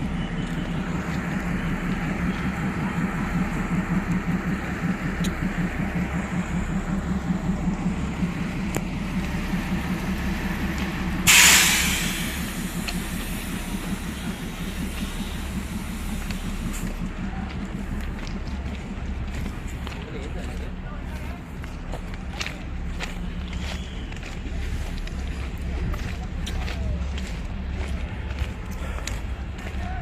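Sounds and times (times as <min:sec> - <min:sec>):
locomotive engine running: 0:00.0 - 0:30.0
loud hissing air burst: 0:11.2 - 0:16.8.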